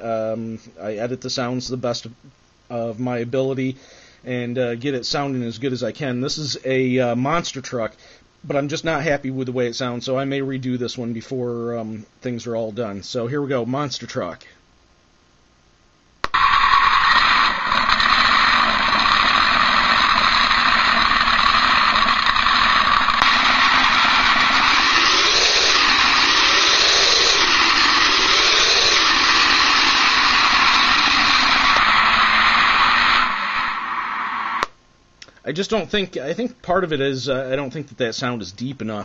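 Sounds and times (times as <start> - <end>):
truck engine sound from small speaker: 16.4 - 33.8.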